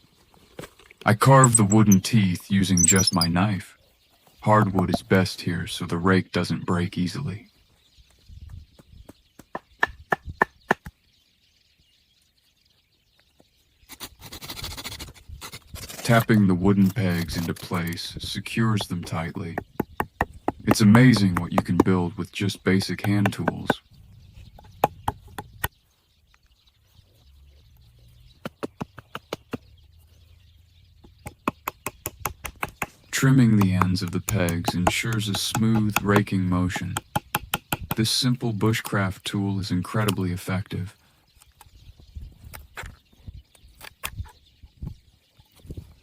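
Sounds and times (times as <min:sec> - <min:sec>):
wooden pegs tapped into wood: 0:02.8 - 0:03.2, 0:18.8 - 0:23.8, 0:24.6 - 0:25.8, 0:31.0 - 0:38.2
sharp wooden knocks: 0:08.8 - 0:11.0, 0:18.8 - 0:23.8, 0:24.6 - 0:25.8, 0:28.4 - 0:29.7, 0:31.0 - 0:38.1.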